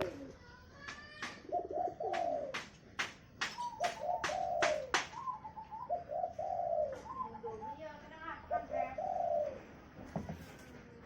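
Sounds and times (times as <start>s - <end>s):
doves cooing: 0.0s - 0.4s, 1.4s - 2.8s, 3.4s - 10.0s.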